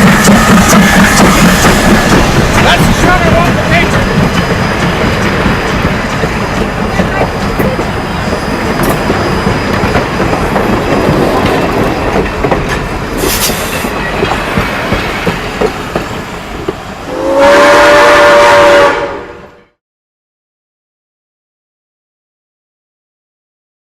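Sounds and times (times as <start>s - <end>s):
train wheels clattering on rails: 0.0s - 17.5s
steam hiss: 13.0s - 17.4s
steam whistle blast: 17.1s - 19.6s.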